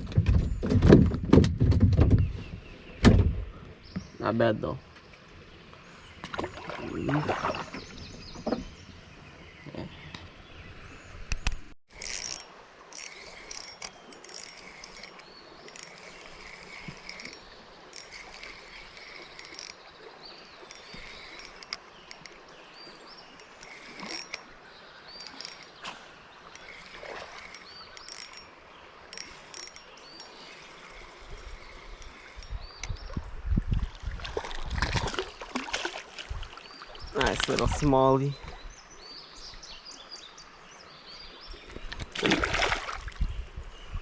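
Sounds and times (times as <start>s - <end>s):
small birds chirping: 2.1s - 33.8s, 34.4s - 42.2s
flowing water: 3.6s - 44.0s
water sloshing: 6.2s - 10.0s, 11.9s - 38.6s, 41.6s - 43.2s
insects calling: 11.9s - 33.2s.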